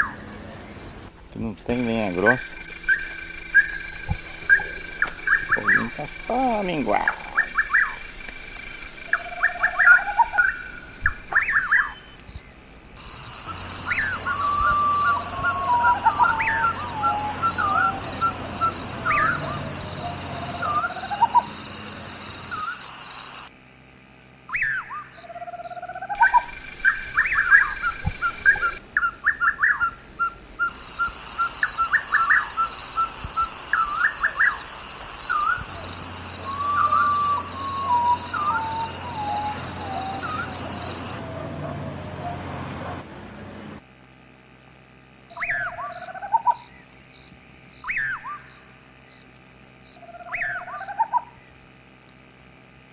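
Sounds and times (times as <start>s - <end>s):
birds calling: 0.0s - 22.8s, 26.1s - 30.8s, 35.3s - 43.8s
high insect drone: 0.0s - 52.9s.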